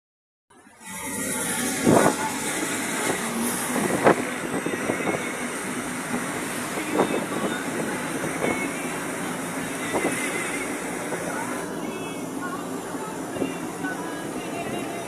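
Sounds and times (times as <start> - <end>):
road and engine noise: 0.5 - 15.0.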